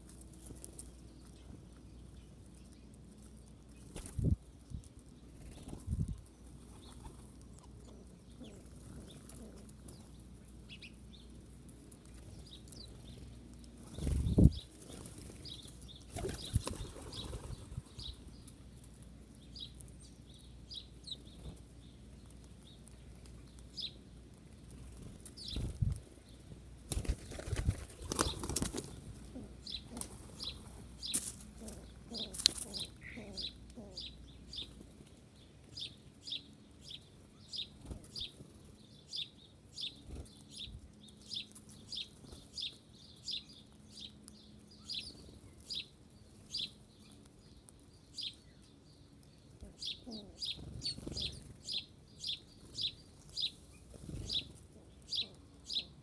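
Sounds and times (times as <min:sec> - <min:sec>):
small birds chirping: 0:00.0 - 0:56.0
birds flapping wings: 0:03.8 - 0:04.4, 0:16.1 - 0:18.0, 0:26.9 - 0:29.2.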